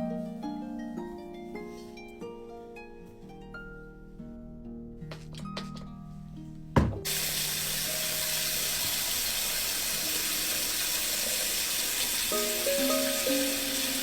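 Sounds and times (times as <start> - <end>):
soft background music: 0.0 - 9.0, 12.2 - 14.0
water running from a tap: 7.0 - 14.0.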